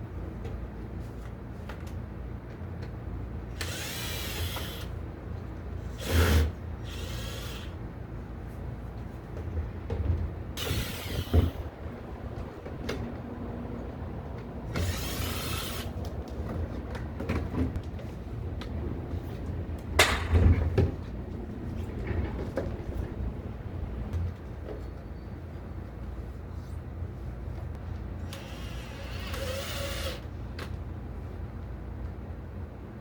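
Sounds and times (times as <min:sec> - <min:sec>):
power drill bursts: 0:03.6 - 0:05.0, 0:06.0 - 0:07.8, 0:10.6 - 0:11.6, 0:14.7 - 0:15.9, 0:28.2 - 0:30.2.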